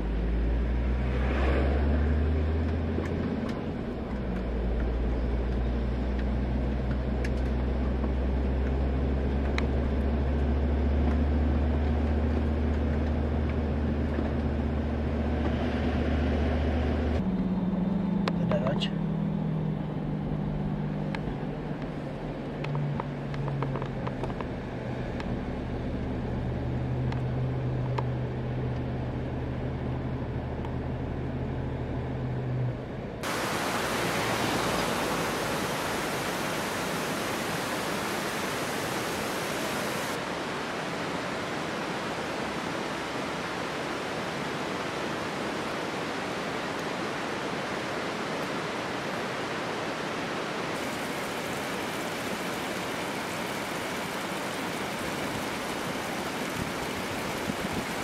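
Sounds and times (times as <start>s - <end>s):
waterfall rushing: 33.2s - 58.0s.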